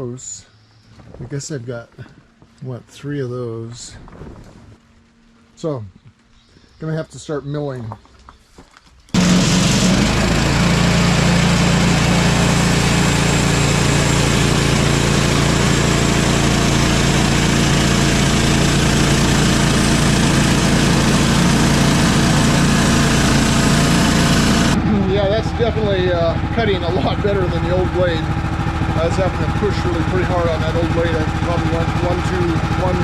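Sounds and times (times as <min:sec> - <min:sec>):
bandsaw sawmill cutting log: 0:09.1 - 0:33.0
gas engine under load: 0:09.1 - 0:33.0.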